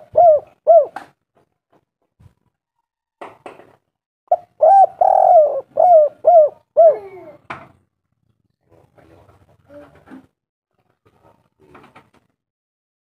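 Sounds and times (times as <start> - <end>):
dove cooing: 0.0 - 1.0, 4.3 - 7.4.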